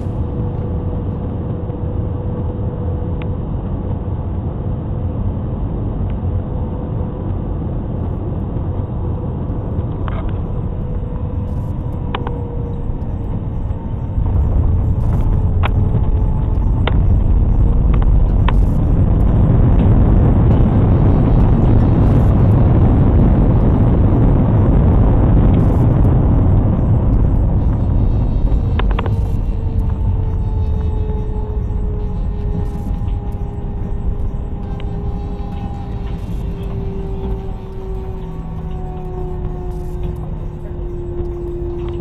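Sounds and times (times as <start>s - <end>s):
faint steady hum: 0.0s - 42.0s
jet engines rumbling: 7.3s - 42.0s.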